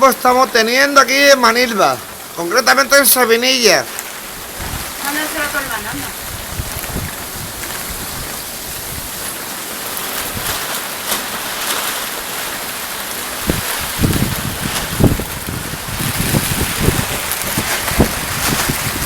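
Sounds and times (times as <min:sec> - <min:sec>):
heavy rain hissing: 0:00.0 - 0:19.0
wind buffeting microphone: 0:04.1 - 0:10.8, 0:12.9 - 0:19.0.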